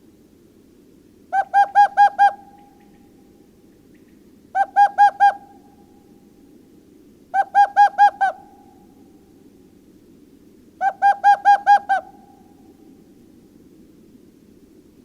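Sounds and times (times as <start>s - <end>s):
low background hiss: 0.0s - 15.0s
bird calling clear notes: 1.3s - 6.2s, 7.3s - 9.2s, 10.8s - 13.0s.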